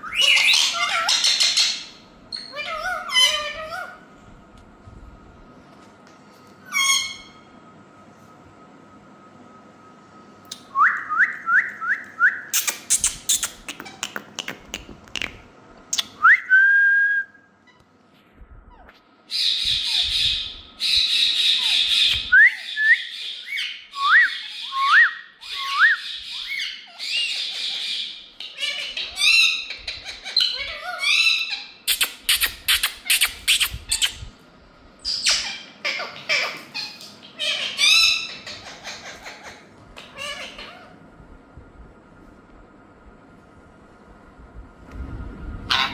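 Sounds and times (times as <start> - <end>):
parakeets calling: 0.0 - 4.0, 6.7 - 7.4, 19.3 - 34.2, 35.1 - 41.0, 45.7 - 45.9.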